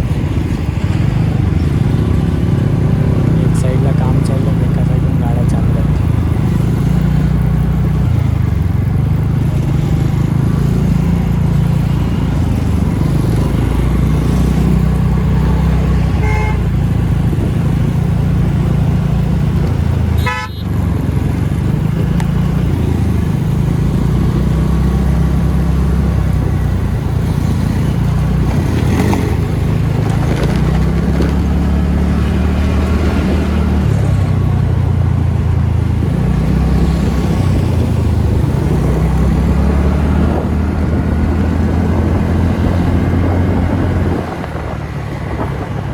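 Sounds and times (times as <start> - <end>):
road and wind noise: 0.0 - 45.9
vehicle horns tooting: 16.0 - 16.9, 20.2 - 20.7.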